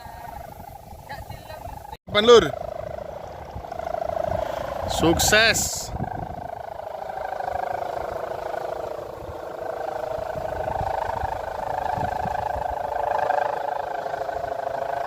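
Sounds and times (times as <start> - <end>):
kite hummer droning: 0.0 - 15.0
wind rumbling on microphone: 0.0 - 15.0.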